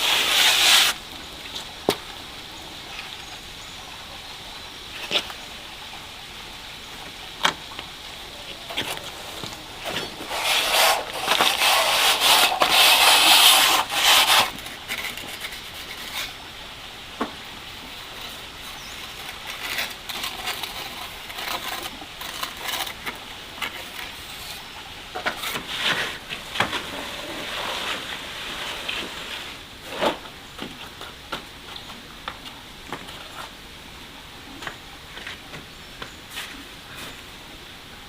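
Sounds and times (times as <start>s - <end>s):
scraping against hard surface: 0.0s - 1.0s, 8.7s - 16.4s, 18.2s - 30.3s.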